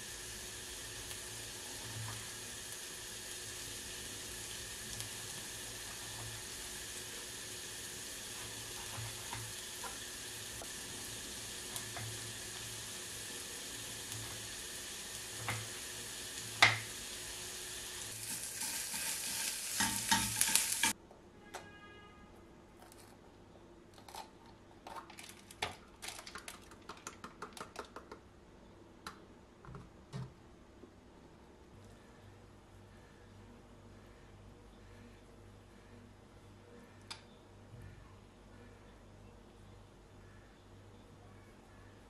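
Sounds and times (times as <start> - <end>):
food sizzling in a frying pan: 0.0 - 21.0.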